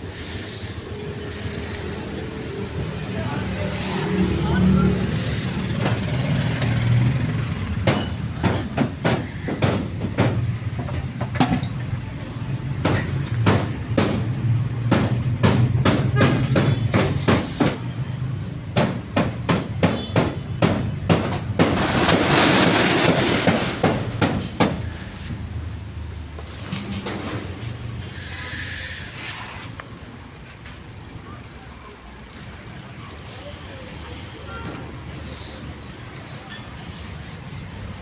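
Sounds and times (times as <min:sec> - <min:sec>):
loud hiss: 0:00.0 - 0:01.1, 0:28.0 - 0:29.5
sharp knocks: 0:07.8 - 0:11.6, 0:12.8 - 0:17.8, 0:18.7 - 0:24.8.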